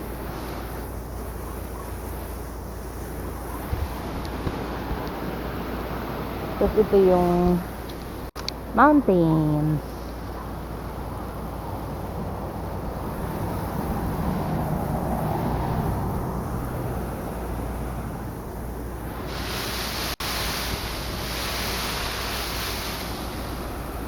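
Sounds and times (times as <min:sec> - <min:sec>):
bright hiss: 0:19.1 - 0:24.0.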